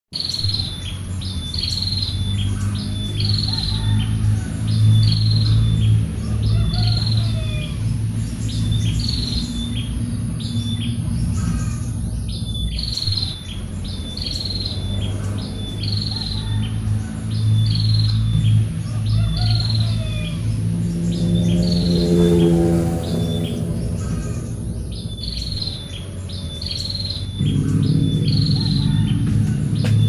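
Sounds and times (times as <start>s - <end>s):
loud low hum: 0.2s - 30.0s
bird high falling call: 26.8s - 30.0s.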